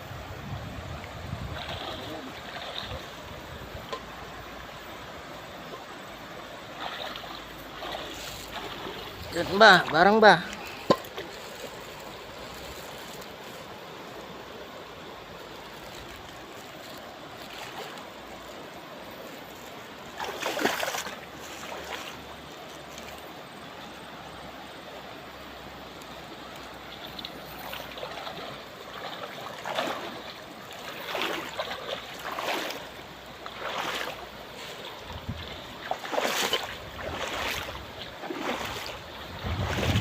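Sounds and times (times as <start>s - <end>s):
shallow river water flowing: 0.0s - 40.0s
splashes in water: 1.3s - 4.0s, 6.6s - 13.6s, 20.0s - 23.2s, 26.5s - 40.0s.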